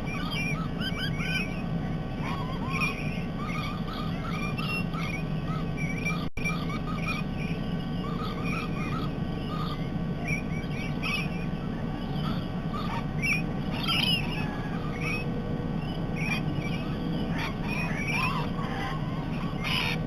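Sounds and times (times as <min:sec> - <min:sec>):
parrots chattering and squawking: 0:00.0 - 0:20.0
steady low hum: 0:00.0 - 0:20.0.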